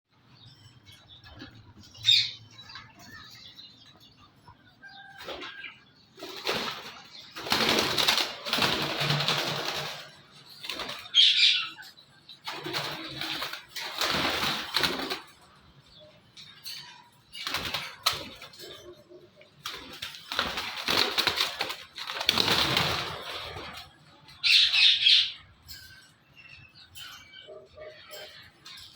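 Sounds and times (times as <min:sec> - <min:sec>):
parakeet wings flapping: 0:06.2 - 0:11.4, 0:12.5 - 0:15.4, 0:19.7 - 0:23.8.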